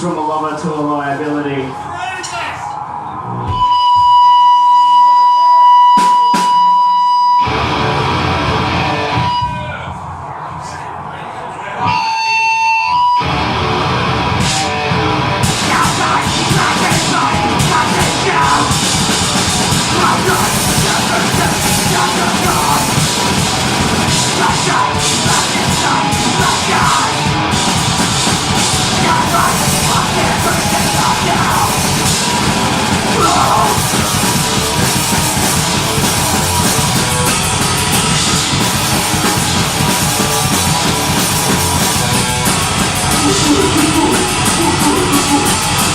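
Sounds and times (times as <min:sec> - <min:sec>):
distorted electric guitars: 0:02.7 - 0:11.1, 0:11.8 - 0:45.9
bass guitar: 0:07.4 - 0:09.6, 0:11.8 - 0:45.9
fast drums: 0:14.4 - 0:45.9
person screaming vocals: 0:19.9 - 0:23.0, 0:29.0 - 0:31.9, 0:33.1 - 0:34.1, 0:43.2 - 0:45.8.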